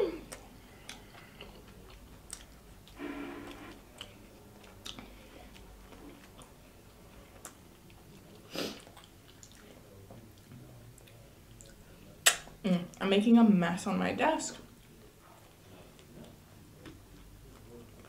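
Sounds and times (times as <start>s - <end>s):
chewing: 0.2s - 3.0s, 3.9s - 12.4s, 14.7s - 18.0s
wet mouth clicks: 11.0s - 12.5s.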